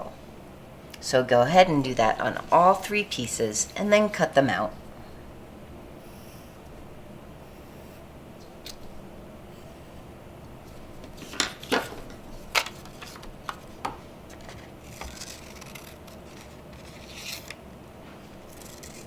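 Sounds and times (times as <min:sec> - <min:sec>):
paper rustling: 0:10.7 - 0:17.6
scissors snipping paper: 0:14.8 - 0:17.6, 0:18.5 - 0:19.0.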